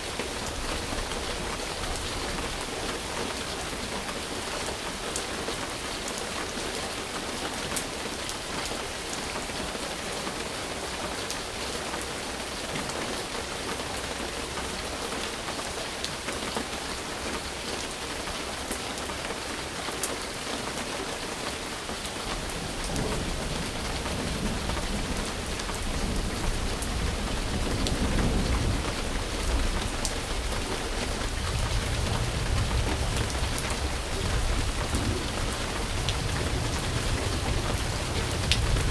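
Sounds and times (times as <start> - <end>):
rain hissing: 22.2 - 38.9
thunder rumbling: 22.4 - 38.9.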